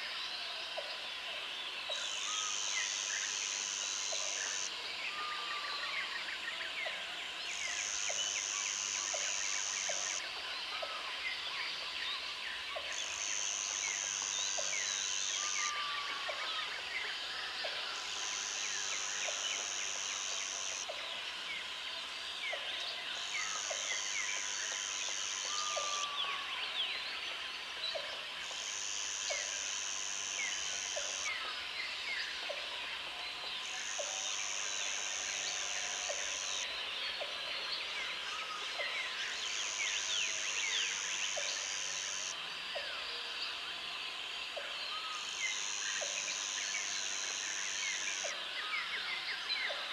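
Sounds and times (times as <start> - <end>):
insect buzzing: 2.3 - 4.7, 13.0 - 16.0, 28.4 - 31.3, 39.6 - 42.4.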